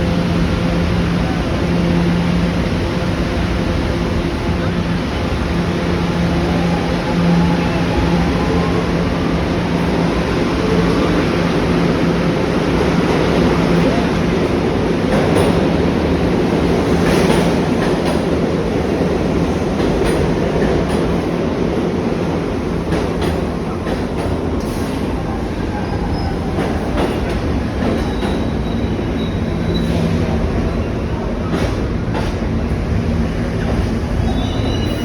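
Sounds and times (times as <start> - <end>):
subway train wheels rumbling on rails: 0.0 - 35.0
high wheel squeal: 28.1 - 30.1, 34.2 - 35.0.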